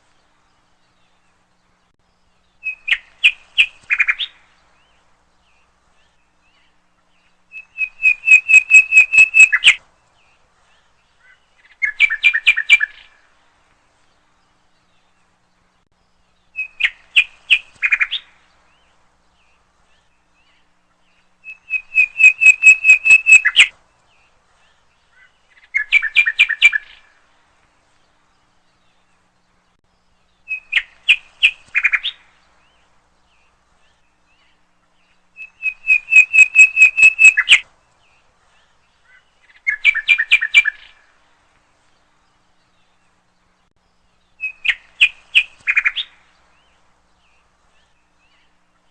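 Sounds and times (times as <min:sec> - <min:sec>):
songbird chirping: 0:00.0 - 0:48.9.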